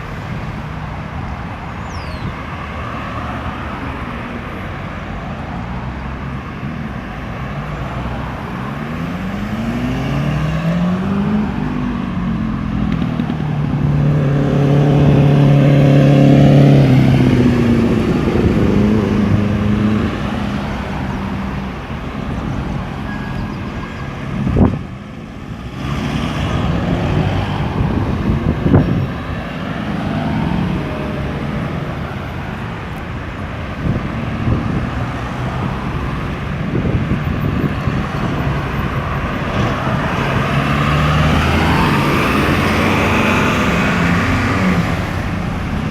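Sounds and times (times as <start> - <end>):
road traffic: 0.0 - 45.9
vehicle engine accelerating: 8.0 - 23.0, 24.4 - 33.1, 33.7 - 45.9.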